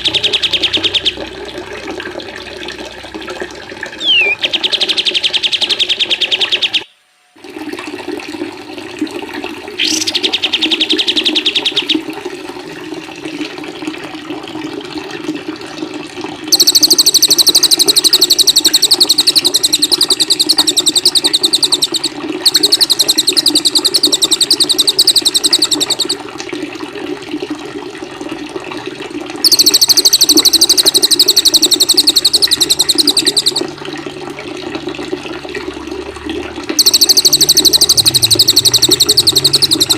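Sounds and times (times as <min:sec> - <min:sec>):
songbirds trilling: 0:00.0 - 0:01.2, 0:04.0 - 0:06.9, 0:09.8 - 0:12.0, 0:16.5 - 0:26.2, 0:29.4 - 0:33.7, 0:36.8 - 0:39.9
running water: 0:00.0 - 0:39.9.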